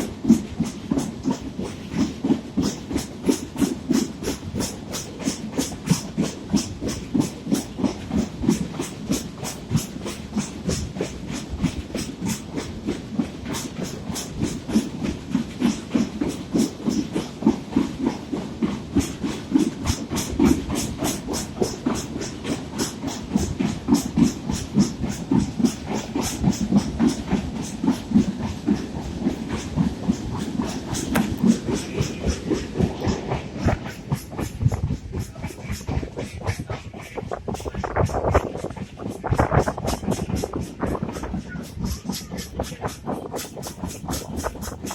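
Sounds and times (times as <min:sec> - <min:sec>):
wheels clicking over rail joints: 0:00.0 - 0:37.8
train wheels rumbling: 0:00.0 - 0:44.9.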